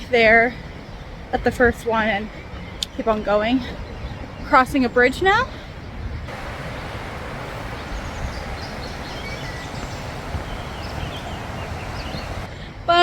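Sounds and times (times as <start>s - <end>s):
rushing noise with low rumble: 6.2s - 12.5s
faint bird chirps: 6.3s - 12.5s.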